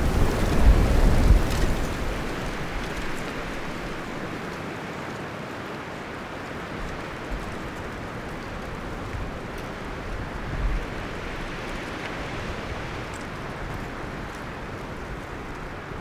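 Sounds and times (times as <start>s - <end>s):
wind rustling leaves and branches: 0.0s - 16.0s.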